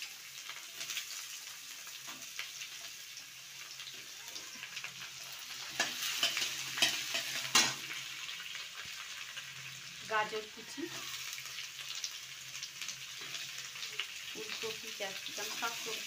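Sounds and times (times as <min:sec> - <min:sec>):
potatoes frying in hot oil: 0:00.0 - 0:16.0
metal spatula scraping a pan: 0:05.4 - 0:08.0.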